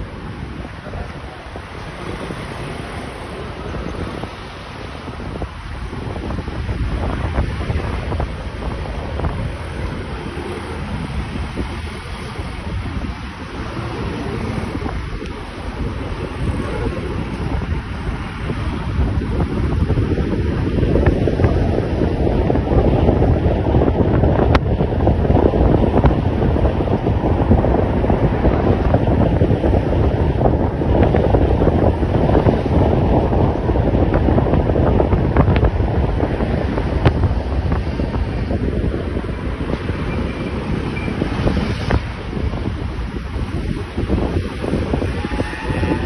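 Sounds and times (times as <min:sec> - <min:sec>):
wind buffeting on microphone: 0:00.0 - 0:46.0.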